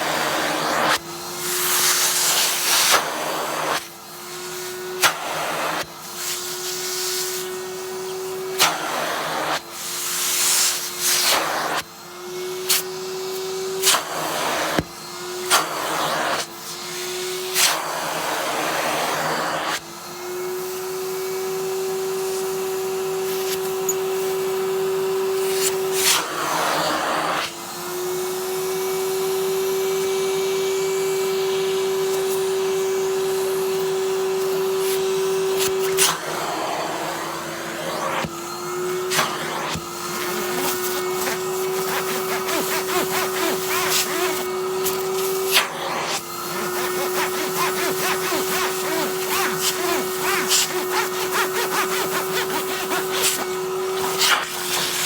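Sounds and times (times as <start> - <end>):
vacuum cleaner motor hum: 0.0 - 55.0
vacuum nozzle air rushes: 0.0 - 55.0.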